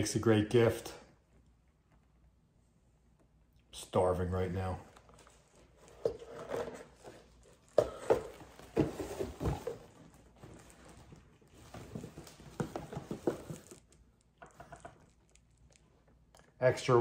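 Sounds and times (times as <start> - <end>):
objects being handled knocking: 11.8 - 13.8.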